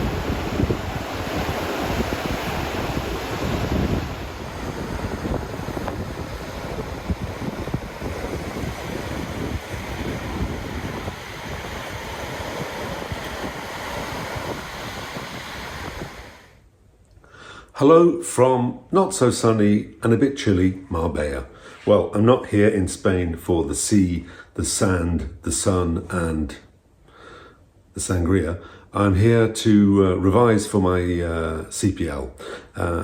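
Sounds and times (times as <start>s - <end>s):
wind buffeting microphone: 0.0s - 16.5s
surf on a beach: 0.0s - 16.6s.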